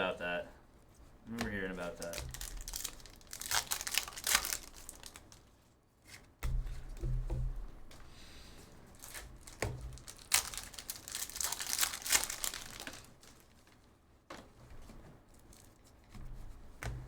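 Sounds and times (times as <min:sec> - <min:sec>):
plastic wrapping crinkling: 0:01.3 - 0:05.8, 0:08.8 - 0:13.9, 0:14.8 - 0:16.1.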